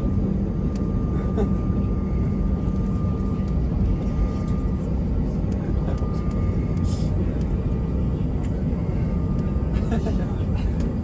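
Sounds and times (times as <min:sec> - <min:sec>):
jet engine rumble: 0:00.0 - 0:11.0
thin steady whine: 0:00.0 - 0:11.0.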